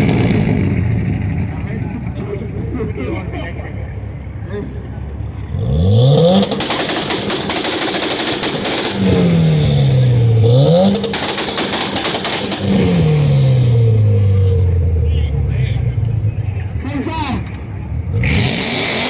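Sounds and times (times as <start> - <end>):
car engine revving: 0.0 - 3.0, 5.1 - 19.0
exhaust popping and banging: 6.2 - 14.2.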